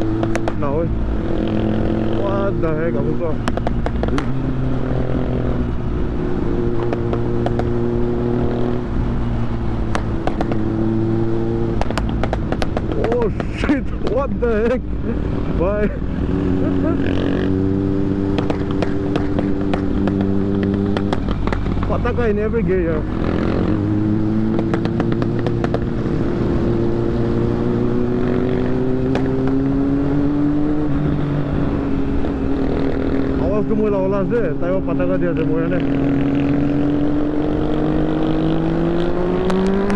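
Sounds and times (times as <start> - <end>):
motorcycle engine running: 6.5 - 33.7
sharp clicks: 39.0 - 39.9.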